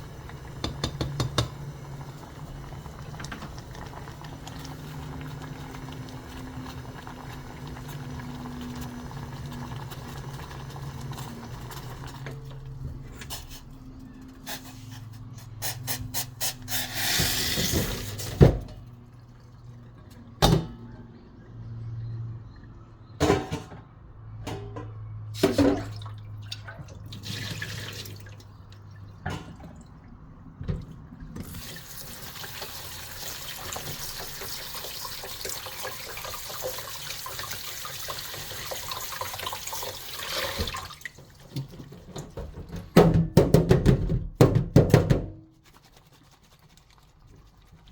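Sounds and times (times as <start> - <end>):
water running at a sink: 0.0 - 12.7, 26.2 - 29.3, 31.4 - 42.4.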